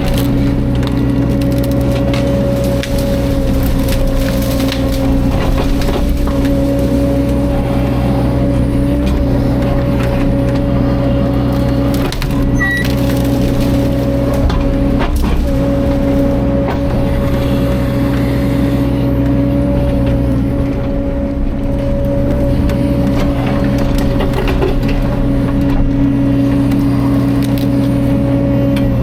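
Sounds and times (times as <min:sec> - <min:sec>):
wood knocking and cracking: 0:00.0 - 0:07.5, 0:08.7 - 0:17.4
excavator diesel engine running: 0:00.0 - 0:29.0.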